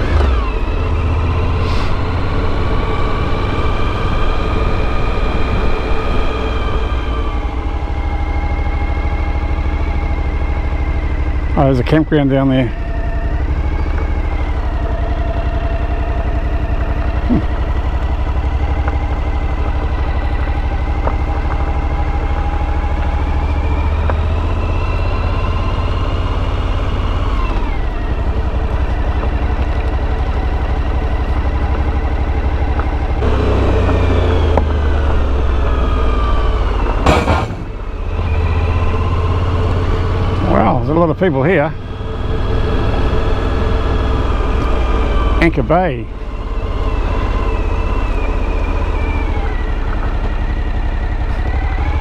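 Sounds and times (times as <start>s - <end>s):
motorcycle engine running: 0.0s - 52.0s
heavy low rumble: 26.2s - 46.4s.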